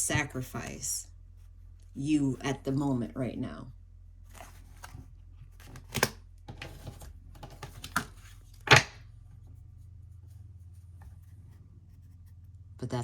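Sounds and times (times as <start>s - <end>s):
cards rustling: 4.2s - 9.0s.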